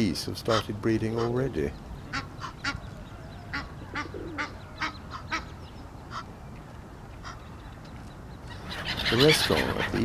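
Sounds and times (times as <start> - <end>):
geese honking: 0.4 - 6.3, 8.5 - 10.0.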